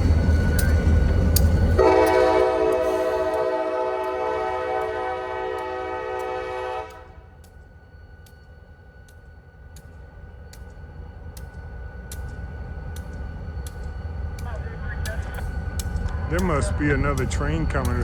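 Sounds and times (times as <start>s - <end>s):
locomotive air horn chord: 1.8s - 7.2s
low engine rumble: 13.1s - 18.0s.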